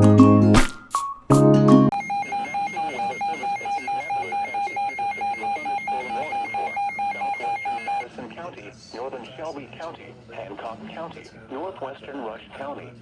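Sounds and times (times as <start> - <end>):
alert alarm beeping: 1.9 - 8.0
faint broadcast voice: 2.0 - 13.0.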